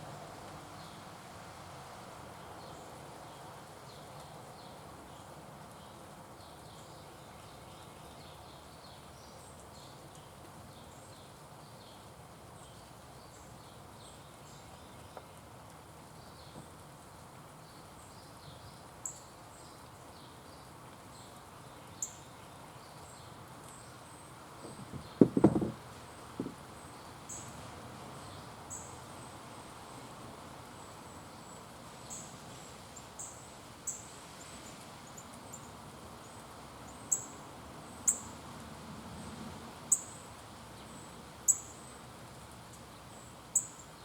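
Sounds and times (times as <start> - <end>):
knocks: 24.6 - 25.8, 26.4 - 26.6.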